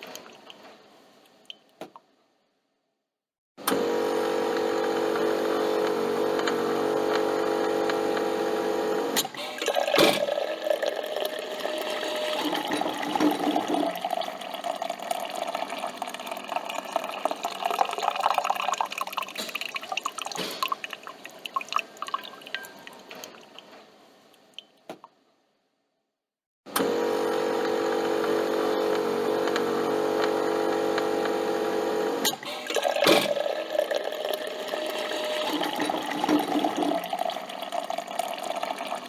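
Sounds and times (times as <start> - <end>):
coffee machine pump humming: 3.6 - 23.0, 26.8 - 39.0
liquid dripping and trickling: 12.4 - 23.7.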